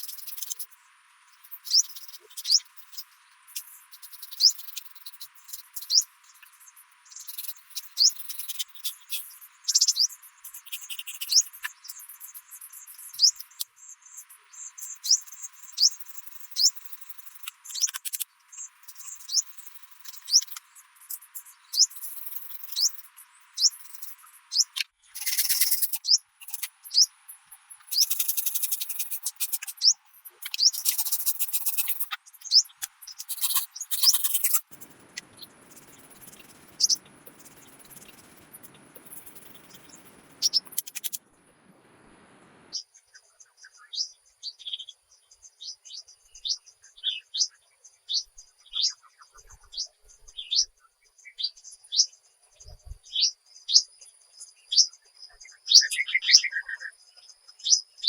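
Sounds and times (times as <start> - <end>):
buzzy crackling trills: 33.2 - 42.7.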